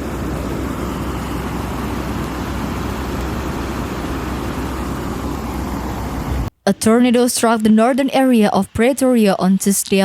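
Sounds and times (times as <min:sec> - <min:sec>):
strong storm wind: 0:00.0 - 0:06.5.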